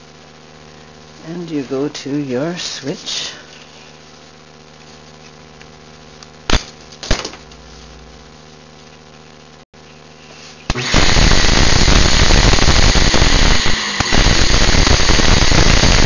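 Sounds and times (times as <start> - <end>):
vacuum motor rushing and whining: 10.7 - 16.0.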